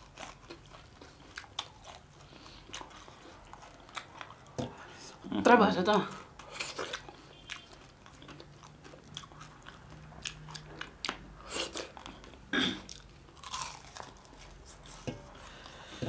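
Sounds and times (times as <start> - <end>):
people crunching fried fish: 0.0 - 4.5, 6.4 - 14.7.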